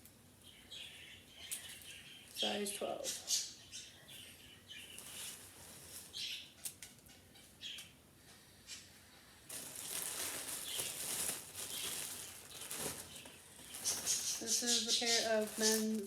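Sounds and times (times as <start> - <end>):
clothing and packaging rustling: 4.8 - 6.3, 9.5 - 16.0.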